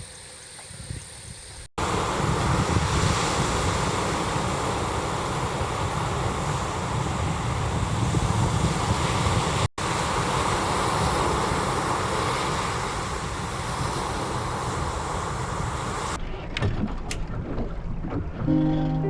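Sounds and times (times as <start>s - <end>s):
wind and water rushing: 1.7s - 16.2s.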